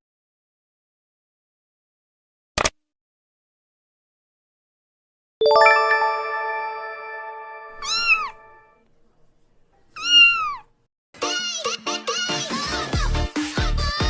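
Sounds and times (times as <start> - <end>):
bright chime chord: 5.4 - 8.6
cat meowing: 7.8 - 8.6, 10.0 - 10.7.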